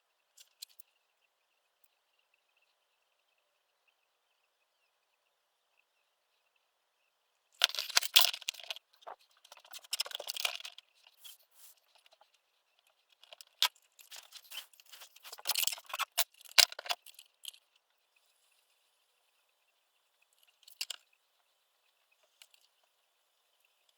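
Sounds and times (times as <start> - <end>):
rustling and scraping: 7.6 - 17.6.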